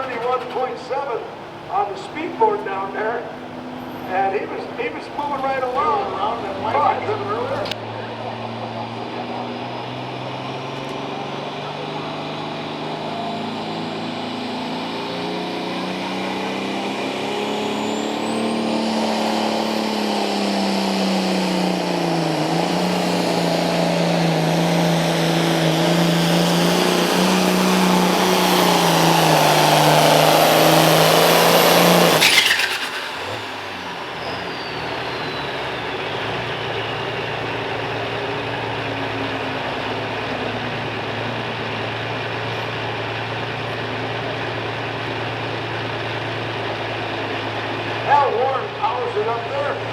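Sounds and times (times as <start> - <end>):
diesel tractor engine under load: 0.0 - 49.9
turbo whistle: 31.6 - 37.9.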